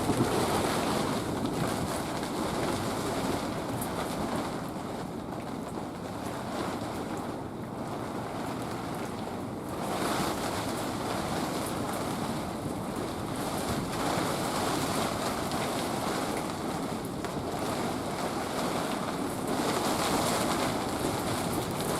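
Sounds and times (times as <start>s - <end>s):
wind and rain on tent canvas: 0.0s - 21.9s.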